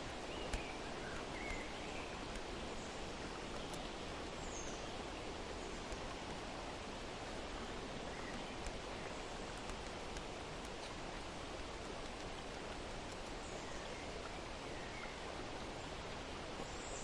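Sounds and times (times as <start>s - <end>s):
rustling or running water: 0.0s - 17.0s
faint bird chirp: 0.2s - 5.9s, 13.1s - 16.0s, 16.6s - 17.0s.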